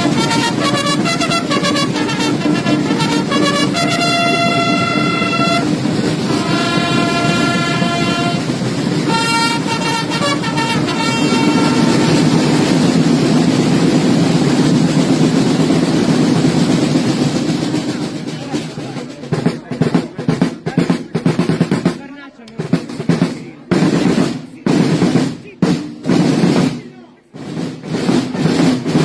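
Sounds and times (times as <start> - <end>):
massed side drums playing: 0.0 - 29.0.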